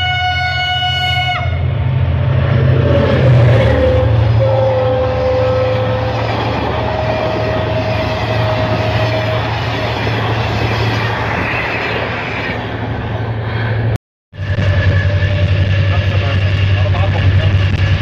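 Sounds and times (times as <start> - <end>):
diesel locomotive cab hum: 0.0 - 18.0
train coaches rushing past: 1.6 - 13.9.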